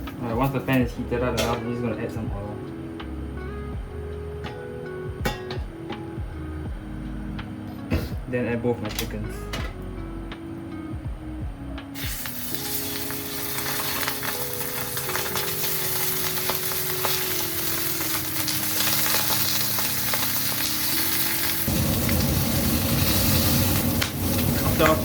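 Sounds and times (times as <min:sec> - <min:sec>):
chicken sizzling in hot oil: 0:12.0 - 0:25.0.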